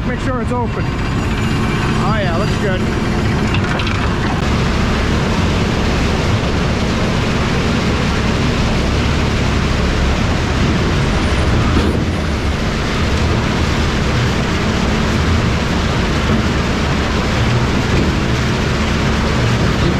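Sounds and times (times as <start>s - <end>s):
diesel truck engine rumble: 0.0s - 19.9s
road noise: 0.0s - 19.9s.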